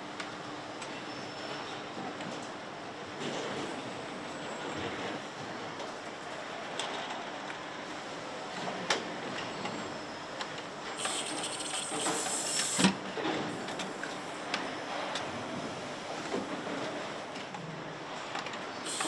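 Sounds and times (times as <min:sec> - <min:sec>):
high air hiss: 0:11.0 - 0:12.9.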